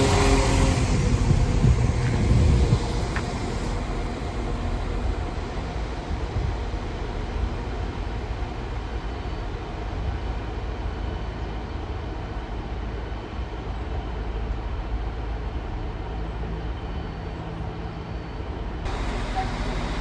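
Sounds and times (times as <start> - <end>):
train rumbling: 0.0 - 20.0
faint hum: 18.9 - 20.0.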